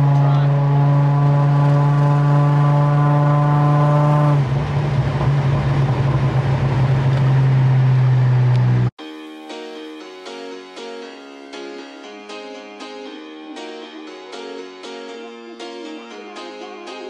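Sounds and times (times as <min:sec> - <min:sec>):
car engine droning: 0:00.0 - 0:08.9.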